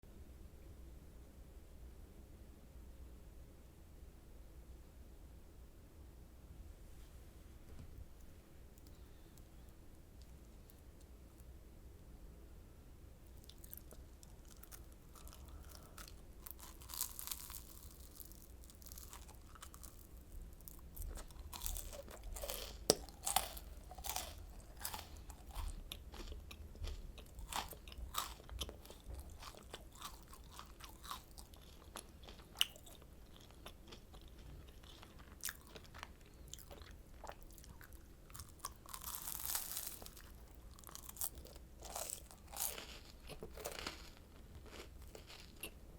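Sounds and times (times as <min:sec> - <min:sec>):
crunching and chewing candy: 0:13.3 - 0:45.9.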